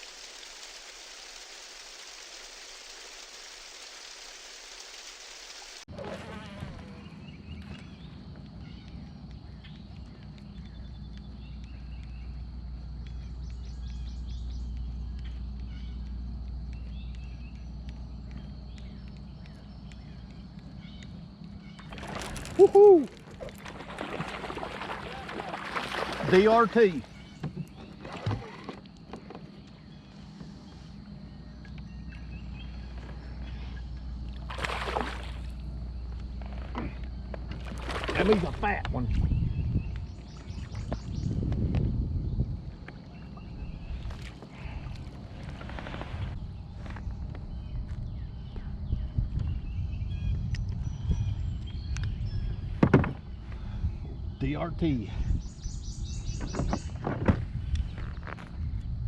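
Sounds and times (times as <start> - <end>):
water splash: 0.0 - 6.9, 21.9 - 27.0, 34.4 - 35.6, 37.6 - 38.8
birds chirping: 6.0 - 59.0
water sloshing around a kayak: 21.6 - 30.8, 32.7 - 39.4, 43.8 - 46.4
low rumble: 31.0 - 54.4.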